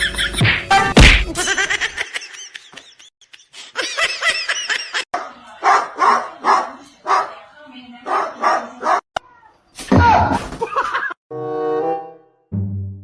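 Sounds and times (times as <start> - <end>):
person laughing: 1.2 - 5.1, 10.5 - 11.2.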